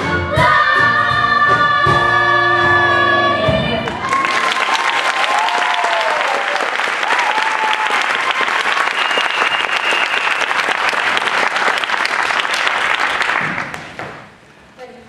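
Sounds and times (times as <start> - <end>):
people whooping: 3.8 - 10.8
audience applauding: 3.8 - 14.2
person whistling: 8.9 - 10.5.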